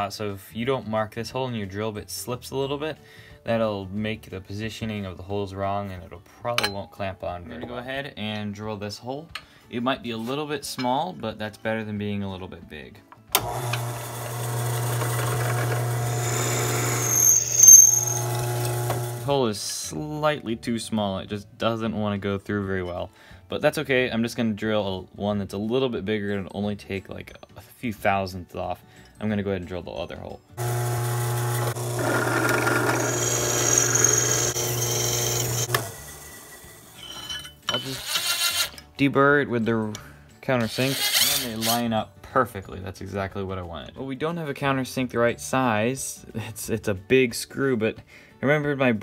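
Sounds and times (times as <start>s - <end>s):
drill press motor hum: 13.4s - 19.3s, 30.6s - 36.9s
drill bit squealing in metal: 14.6s - 19.2s, 30.8s - 38.8s, 40.7s - 41.8s.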